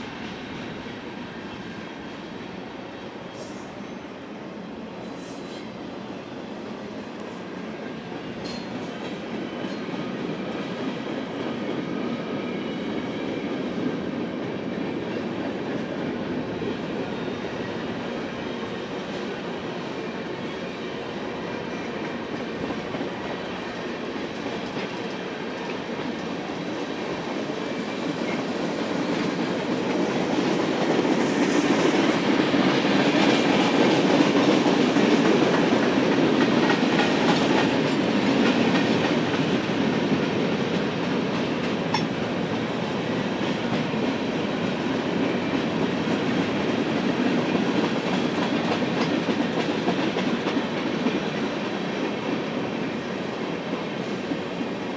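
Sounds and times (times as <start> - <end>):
freight train rolling past: 0.0 - 54.9.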